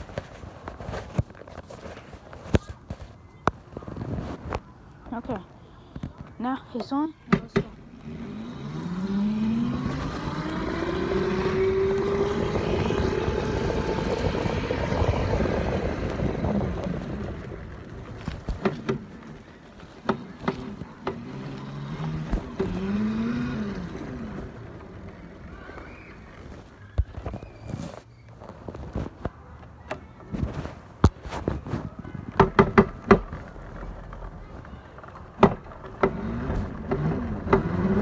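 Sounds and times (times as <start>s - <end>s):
wind and riding noise: 0.0s - 38.0s
electric motor whine: 7.8s - 17.8s.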